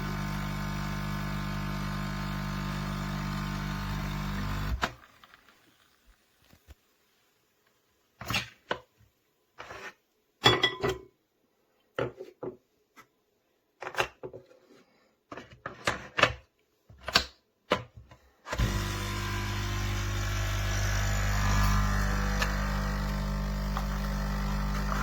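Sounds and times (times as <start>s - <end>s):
steady motor hum: 0.0s - 4.8s, 18.6s - 25.0s.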